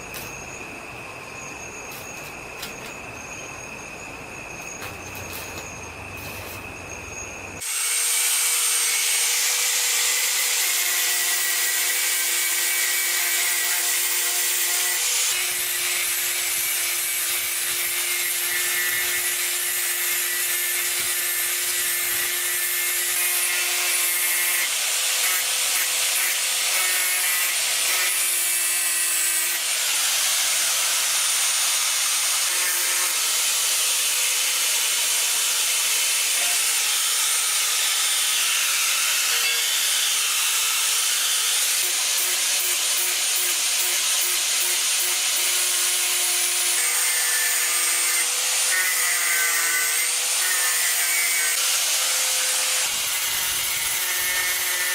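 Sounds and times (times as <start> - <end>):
power tool running under load: 7.6 - 54.9.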